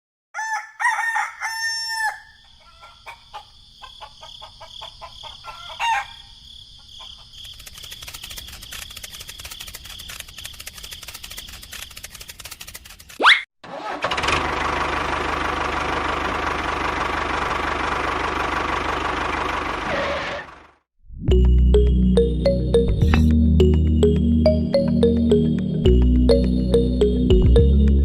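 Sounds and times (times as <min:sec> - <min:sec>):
rooster crowing: 0:00.4 - 0:06.4
chicken clucking: 0:01.1 - 0:07.4.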